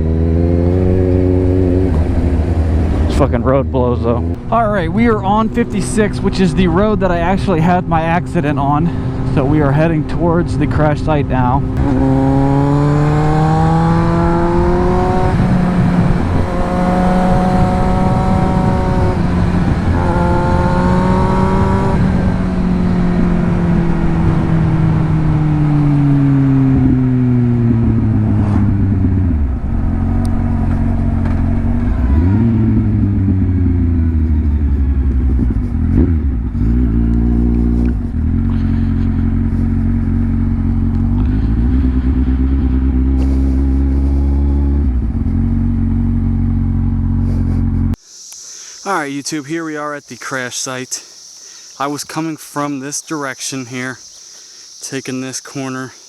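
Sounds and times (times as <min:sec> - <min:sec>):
motorcycle engine revving through gears: 0:00.0 - 0:03.3, 0:11.4 - 0:48.0.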